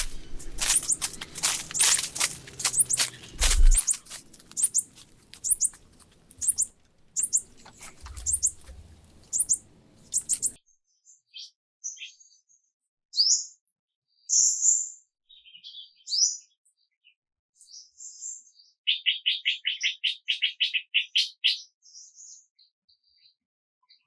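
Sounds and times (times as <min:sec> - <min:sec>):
bird trill: 0:00.0 - 0:10.6
birds chirping and whistling: 0:00.0 - 0:10.6.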